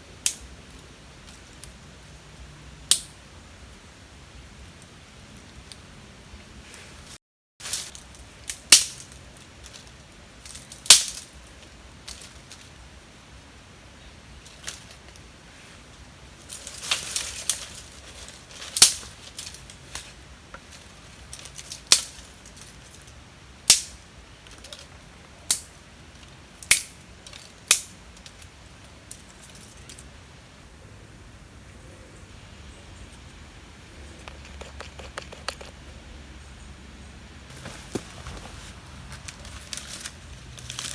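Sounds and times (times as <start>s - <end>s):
rustling: 14.4s - 23.2s, 37.5s - 40.9s.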